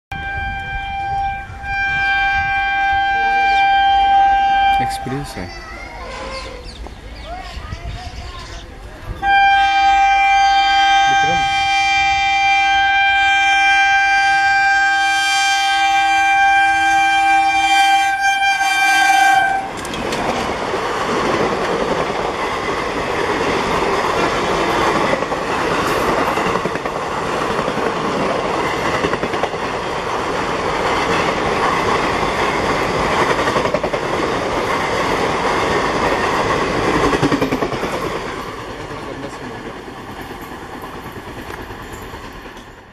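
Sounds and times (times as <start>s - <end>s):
locomotive horn blast: 0.1s - 5.0s, 9.2s - 19.8s
train coaches rumbling and clacking: 0.2s - 42.9s.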